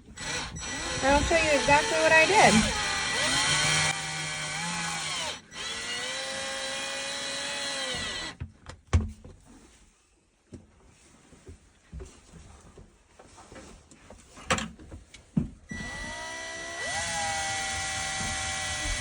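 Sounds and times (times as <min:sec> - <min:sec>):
power tool motor running: 0:00.1 - 0:08.4, 0:15.7 - 0:19.0.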